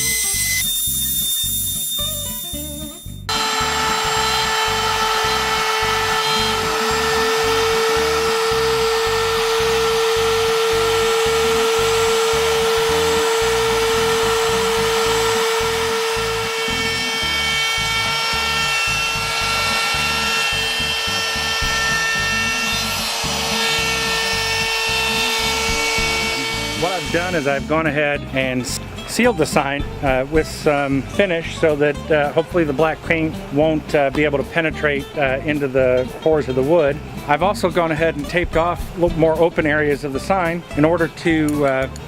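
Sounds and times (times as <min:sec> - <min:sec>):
background music with steady beat: 0:00.0 - 0:42.0
cnc router spindle whining: 0:03.3 - 0:28.0.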